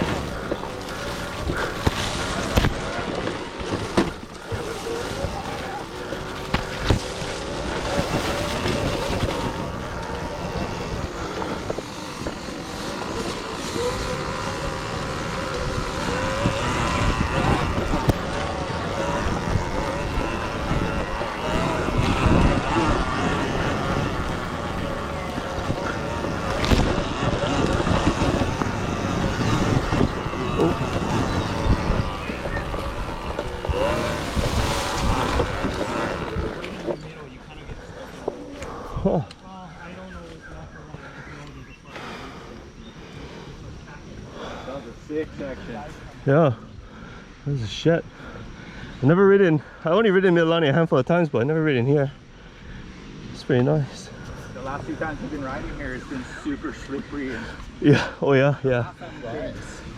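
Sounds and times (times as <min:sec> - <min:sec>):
rumble on microphone: 0:00.0 - 0:39.4
electric motorcycle motor whine: 0:00.0 - 0:46.9
tyre and suspension noise: 0:00.0 - 0:59.9.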